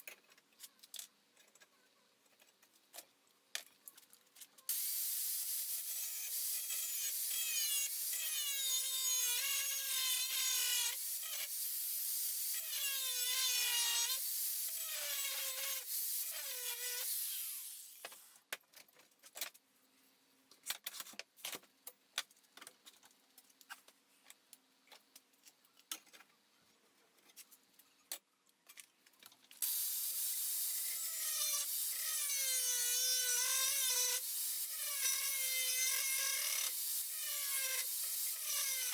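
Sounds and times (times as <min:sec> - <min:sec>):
angle grinder grinding steel: 0:04.7 - 0:18.1, 0:29.6 - 0:38.9.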